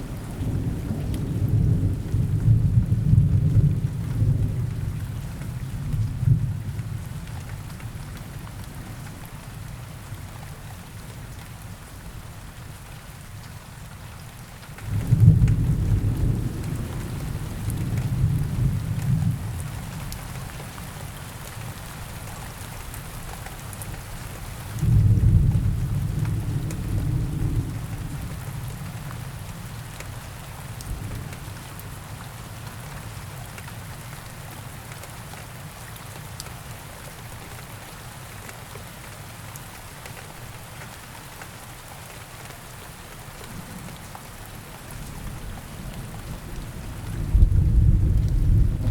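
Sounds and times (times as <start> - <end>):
low rolls of thunder: 0.0 - 7.1, 14.8 - 20.1, 24.8 - 29.8, 43.5 - 48.9
steady rain falling: 0.0 - 48.9.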